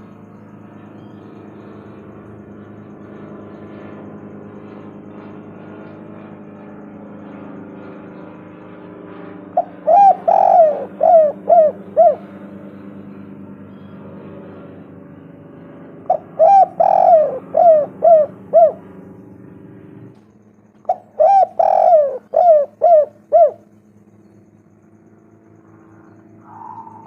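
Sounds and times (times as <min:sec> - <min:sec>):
low steady hum: 0:00.0 - 0:27.0
dove cooing: 0:09.6 - 0:14.0, 0:16.1 - 0:19.0, 0:20.8 - 0:23.7, 0:26.4 - 0:27.0.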